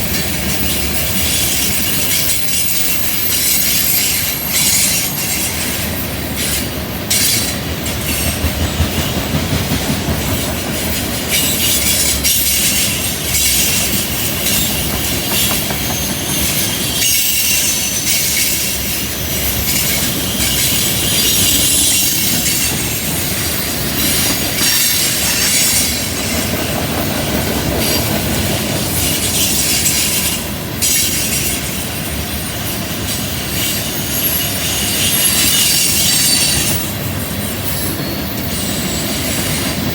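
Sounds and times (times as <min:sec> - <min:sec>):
low train rumble: 0:00.0 - 0:39.9
wheels clacking over rail joints: 0:00.0 - 0:39.9
wheel flanges squealing: 0:00.4 - 0:08.4, 0:11.0 - 0:26.8.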